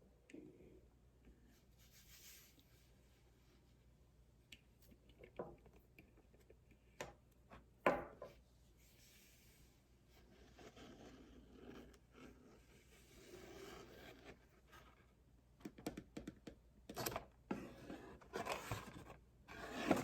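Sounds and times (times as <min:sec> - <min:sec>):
soft rubbing and rustling: 0:01.4 - 0:03.9.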